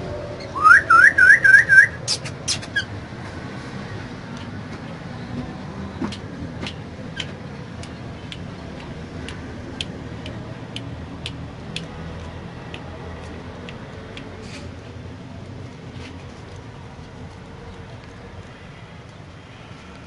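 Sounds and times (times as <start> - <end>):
sharp ticks: 6.1 - 14.4.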